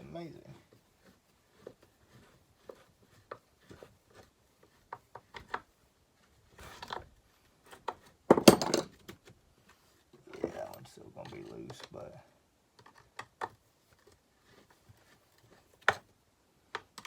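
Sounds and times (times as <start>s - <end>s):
small clicks and knocks: 12.7s - 14.2s, 16.7s - 17.0s.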